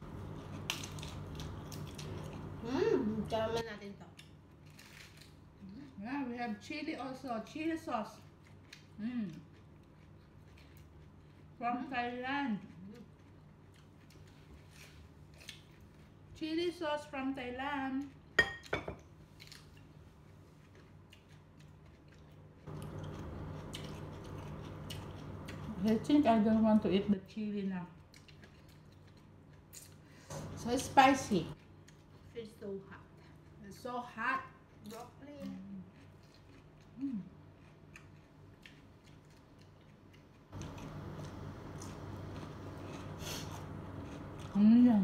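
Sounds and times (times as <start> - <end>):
low background hum: 0.0 - 45.0
raw vegetables being chewed: 8.2 - 16.1, 19.4 - 26.2, 34.6 - 45.0.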